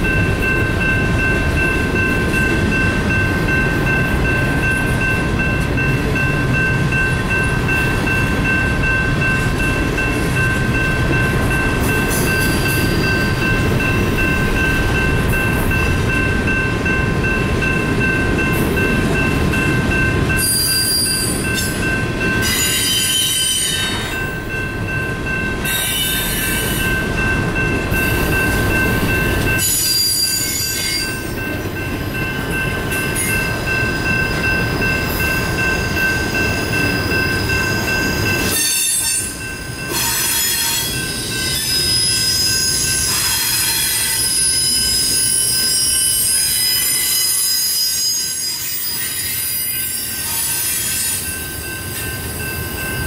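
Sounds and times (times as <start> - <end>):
crossing bell ringing: 0.0 - 53.0
train wheels rumbling on rails: 0.0 - 53.0
high-pitched wheel squeal: 20.4 - 21.7, 22.4 - 24.2, 29.6 - 31.2, 37.0 - 51.3.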